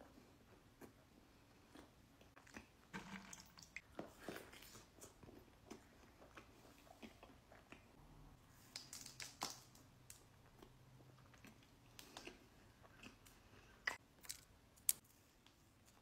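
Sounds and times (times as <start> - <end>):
chewing cookies: 0.1 - 3.0, 3.8 - 16.0.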